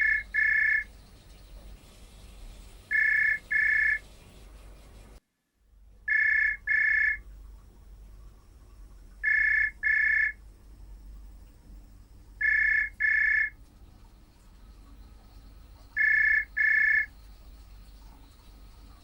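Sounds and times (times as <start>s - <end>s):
telephone double ringing: 2.9s - 4.0s, 6.1s - 7.2s, 9.2s - 10.4s, 12.4s - 13.5s.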